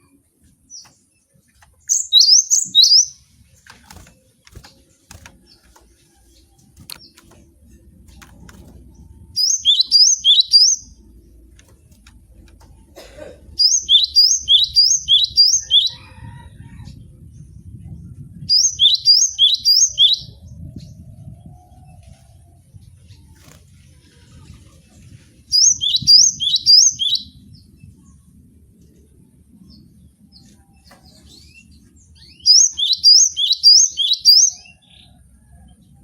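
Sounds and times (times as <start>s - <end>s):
bird whistling song: 1.8s - 3.2s, 9.3s - 11.0s, 13.6s - 16.1s, 18.4s - 20.6s, 25.5s - 27.4s, 32.2s - 34.8s.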